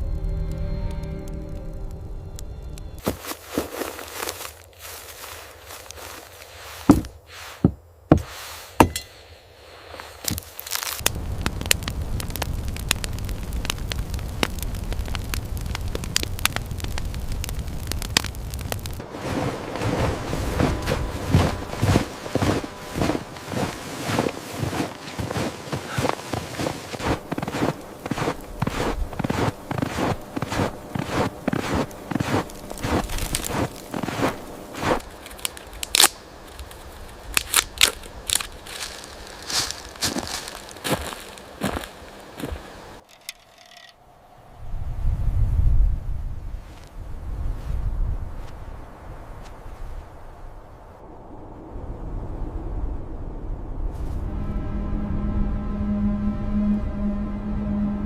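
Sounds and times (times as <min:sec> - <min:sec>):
fire low rumble: 0:00.0 - 0:07.2, 0:09.6 - 0:58.0
footsteps crunching in snow: 0:03.0 - 0:09.0, 0:09.6 - 0:12.5, 0:17.8 - 0:43.7
fire pops and snaps: 0:10.0 - 0:19.0, 0:19.6 - 0:43.9.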